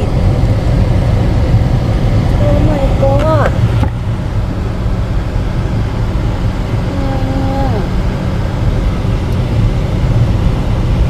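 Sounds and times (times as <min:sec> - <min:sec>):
vehicle road noise rumble: 0:00.0 - 0:11.0
drawn-out voice: 0:06.8 - 0:07.9.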